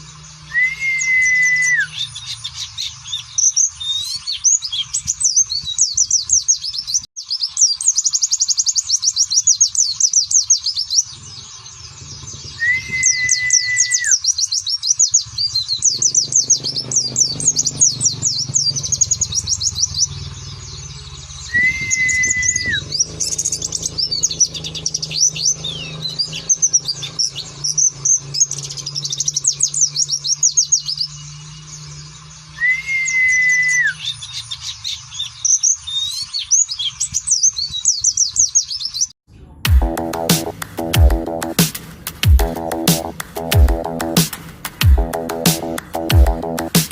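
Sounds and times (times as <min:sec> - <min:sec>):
long level whistle: 0:00.5 - 0:01.9, 0:12.6 - 0:14.1, 0:21.5 - 0:22.8, 0:32.6 - 0:34.0.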